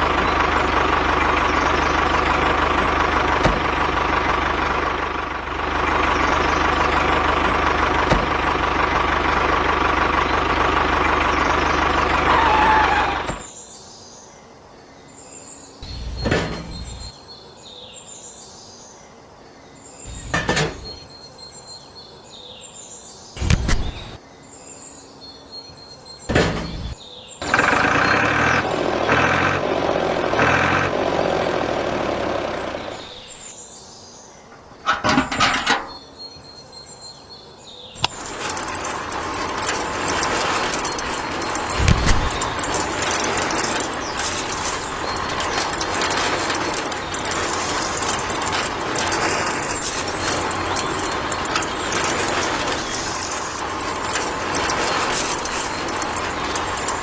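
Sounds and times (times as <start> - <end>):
tractor engine running: 0.0 - 13.5, 15.8 - 17.1, 20.1 - 21.0, 23.4 - 24.2, 26.3 - 33.6, 34.6 - 36.0, 38.0 - 57.0.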